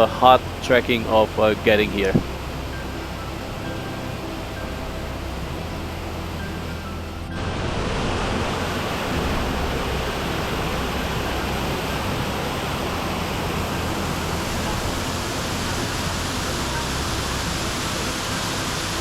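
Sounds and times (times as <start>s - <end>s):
faint background music: 0.0s - 19.0s
waterfall rushing: 0.0s - 19.0s.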